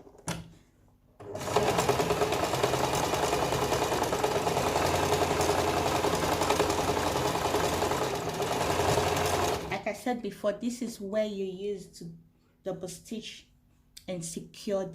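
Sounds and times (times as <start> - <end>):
sewing machine stitching: 1.2 - 9.8.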